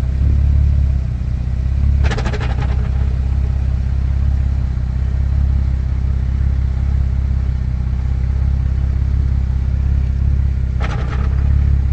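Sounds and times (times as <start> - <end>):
car engine running: 0.0 - 11.9.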